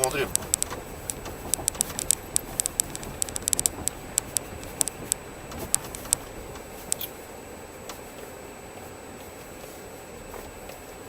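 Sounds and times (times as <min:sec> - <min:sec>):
stones crackling under tyres: 0:00.0 - 0:07.2
car rolling low rumble: 0:00.0 - 0:11.0.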